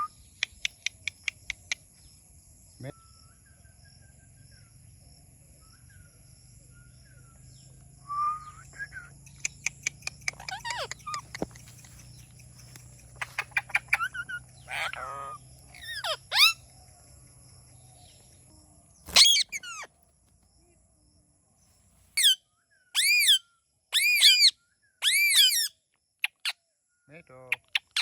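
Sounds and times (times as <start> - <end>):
parakeet clicks and chirps: 0.2 - 1.9, 9.2 - 15.1, 19.1 - 19.9
parakeet squawks: 10.3 - 11.4, 13.2 - 16.6, 19.1 - 19.9, 23.0 - 23.4, 24.0 - 25.7.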